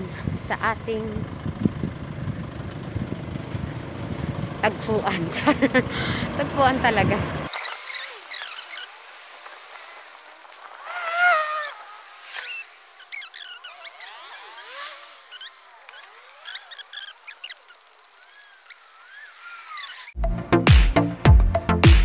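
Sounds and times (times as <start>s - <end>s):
birds chirping: 1.5s - 20.2s
loud wavering bird call: 7.5s - 9.0s, 10.8s - 20.1s.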